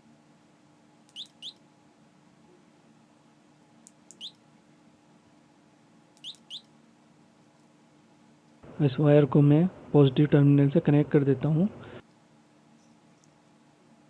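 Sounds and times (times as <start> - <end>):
faint steady hum: 0.0 - 14.0
small bird chirping: 1.1 - 1.6, 4.1 - 4.4, 6.2 - 6.7.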